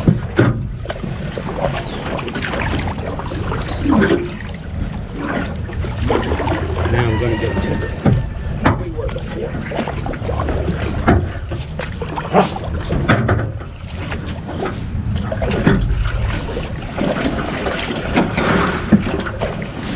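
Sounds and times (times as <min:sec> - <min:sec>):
wind on microphone: 0:00.0 - 0:11.4
boat hull knocks and scrapes: 0:02.7 - 0:08.9, 0:10.8 - 0:19.9.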